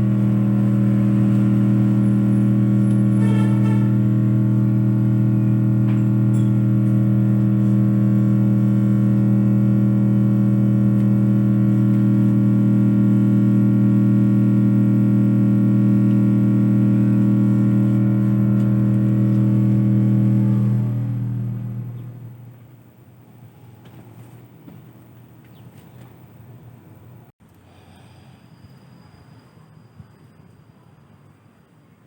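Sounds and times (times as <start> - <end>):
low-pitched electronic test tone: 0.0 - 22.5.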